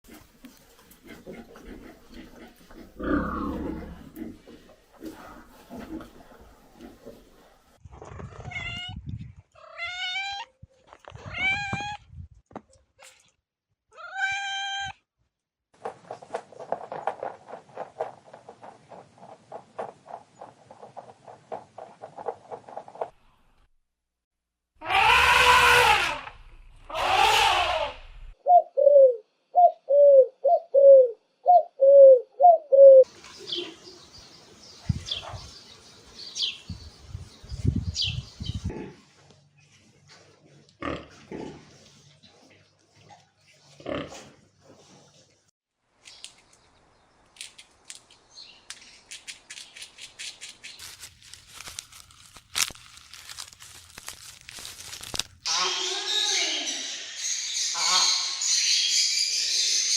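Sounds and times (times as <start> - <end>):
elephant trumpeting: 24.8 - 26.3, 26.9 - 28.0
pigeons cooing: 28.4 - 33.8
chirps: 55.8 - 59.9.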